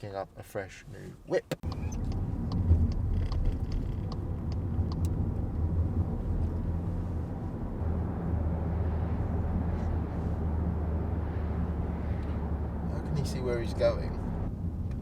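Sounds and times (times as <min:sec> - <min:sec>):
car cabin rumble while driving: 0:01.3 - 0:15.0
faint clicks: 0:01.5 - 0:05.2.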